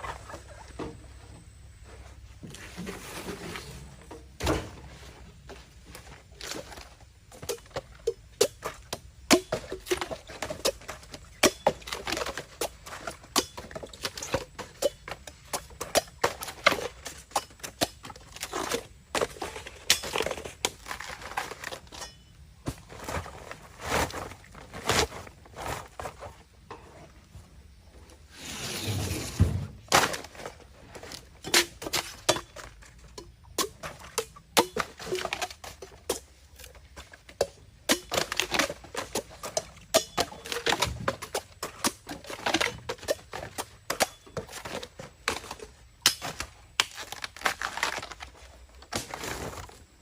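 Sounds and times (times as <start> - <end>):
bamboo being chopped: 7.4 - 22.8, 31.4 - 49.8.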